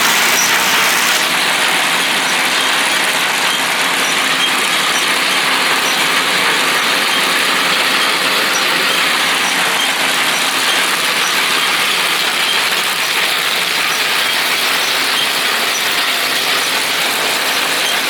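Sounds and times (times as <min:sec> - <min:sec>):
baler mechanical rattle: 0:00.0 - 0:18.0.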